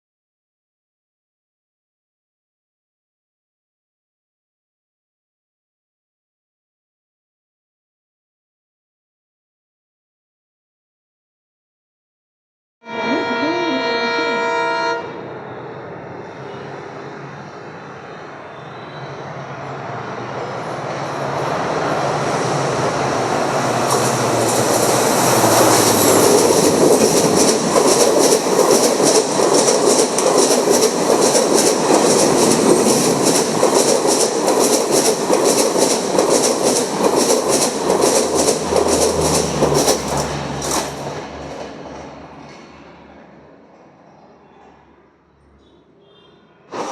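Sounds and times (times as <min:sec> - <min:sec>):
train passing at speed: 0:12.9 - 0:45.0
wheels clickety-clack over rail joints: 0:20.4 - 0:44.0.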